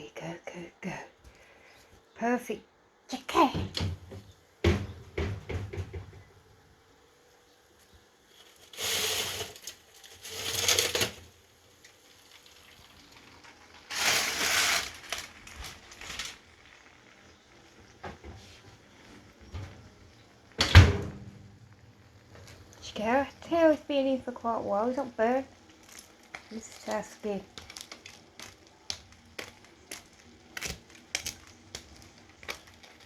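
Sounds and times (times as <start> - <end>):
rustling crinkling handling noise: 7.6 - 20.6, 24.9 - 33.0.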